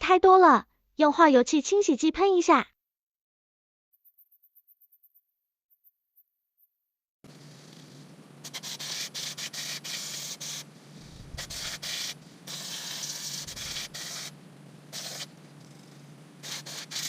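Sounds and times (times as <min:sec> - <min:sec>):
aerosol spray hissing: 0:08.4 - 0:15.3, 0:16.4 - 0:17.0.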